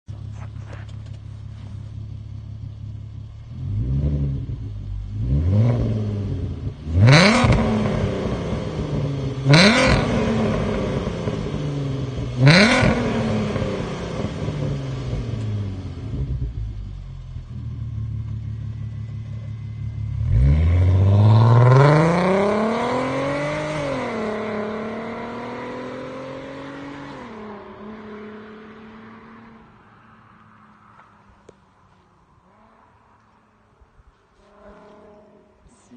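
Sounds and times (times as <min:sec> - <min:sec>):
car engine revving through loud exhaust: 0:01.8 - 0:29.8.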